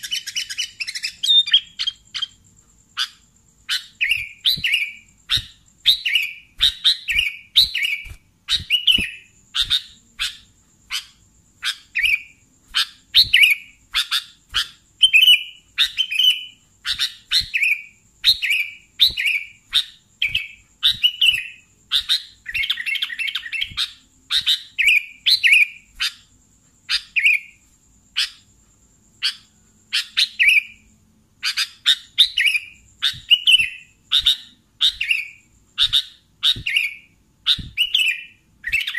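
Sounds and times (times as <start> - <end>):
bulbul singing chirped phrases: 0.0 - 26.0.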